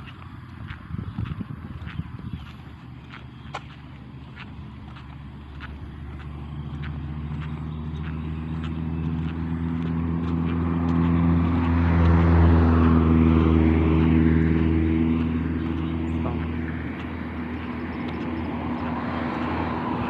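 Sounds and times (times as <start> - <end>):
engine passing by: 0.0 - 20.0.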